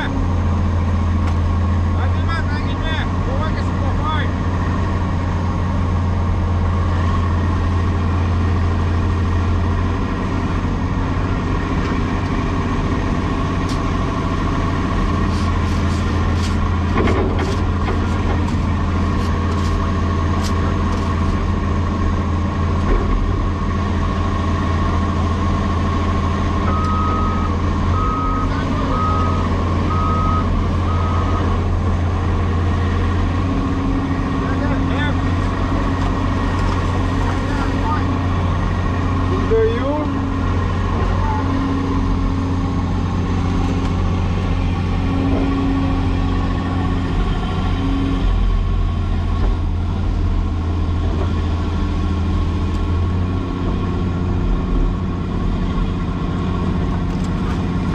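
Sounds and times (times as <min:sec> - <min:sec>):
excavator diesel engine running: 0:00.0 - 0:57.9
backup alarm beeping: 0:26.7 - 0:31.4.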